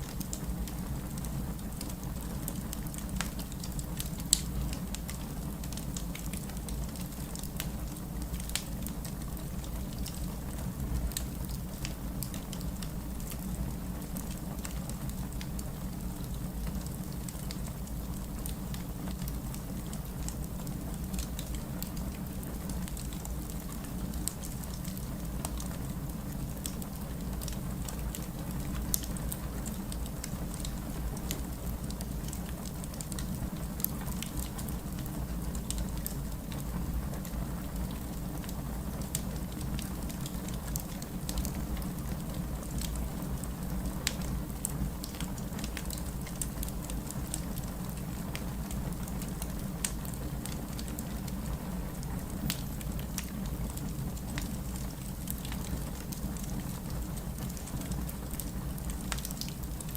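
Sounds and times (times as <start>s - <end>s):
fire crackling and popping: 0.0s - 59.9s.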